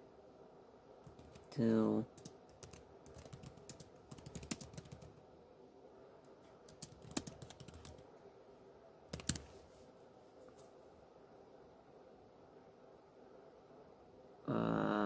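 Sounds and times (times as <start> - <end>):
computer keyboard typing: 1.0 - 1.5, 2.1 - 5.2, 6.7 - 8.0, 9.1 - 9.6.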